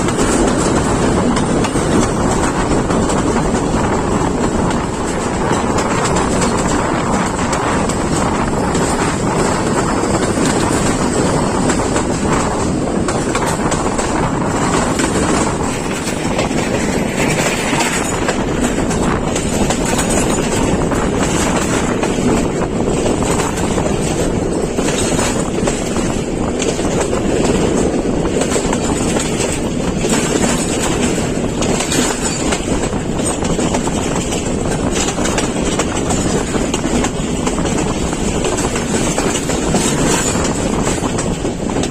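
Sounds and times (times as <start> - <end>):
train wheels rumbling: 0.0 - 41.9.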